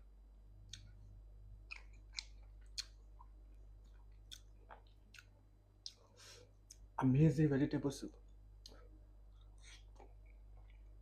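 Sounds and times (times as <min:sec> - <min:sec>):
mouth chewing food: 0:00.6 - 0:01.0, 0:01.6 - 0:06.9.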